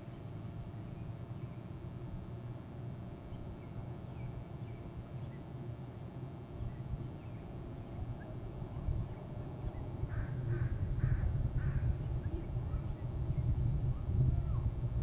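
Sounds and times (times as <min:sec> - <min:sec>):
low outdoor rumble: 0:00.0 - 0:15.0
bird harsh caw calls: 0:10.1 - 0:12.0.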